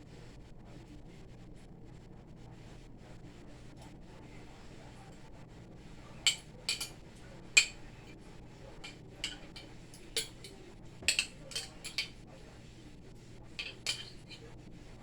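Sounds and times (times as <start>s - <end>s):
dishes and utensils clinking: 6.1s - 12.3s, 13.6s - 14.5s.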